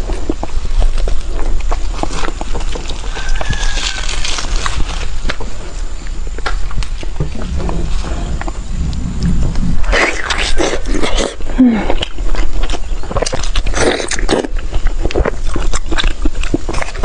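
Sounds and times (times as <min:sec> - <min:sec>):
person chewing food: 0:10.0 - 0:17.0.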